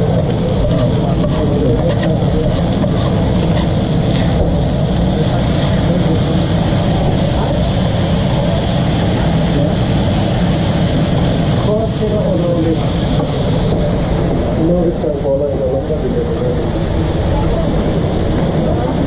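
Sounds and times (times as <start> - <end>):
hiss: 0.0 - 15.2
mechanical drone with low rumble: 0.0 - 19.0.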